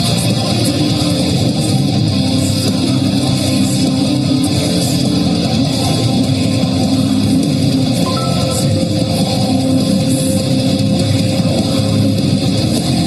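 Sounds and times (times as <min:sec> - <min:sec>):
guitar music: 0:07.8 - 0:10.9.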